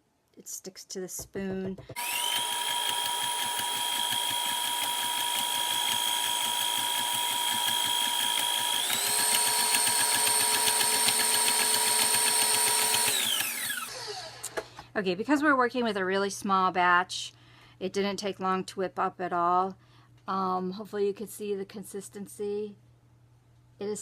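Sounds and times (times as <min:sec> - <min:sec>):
stand mixer motor whine: 0:02.0 - 0:14.5.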